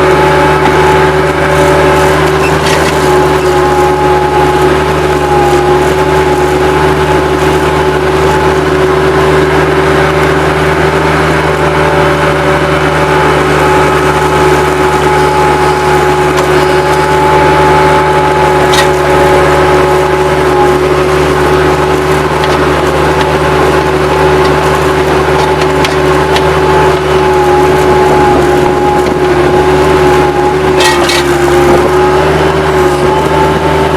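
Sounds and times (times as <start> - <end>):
high whine: 0.0 - 33.9
loader engine drone: 0.0 - 33.9.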